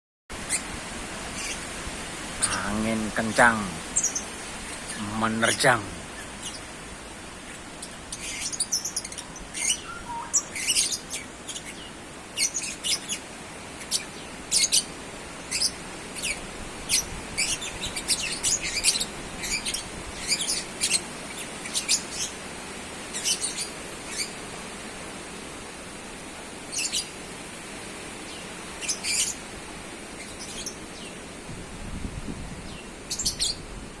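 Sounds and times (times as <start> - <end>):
small birds chirping: 0.4 - 1.7, 2.3 - 24.5, 26.4 - 27.2, 27.8 - 31.4, 32.6 - 33.8
strong wind rushing: 31.5 - 34.0.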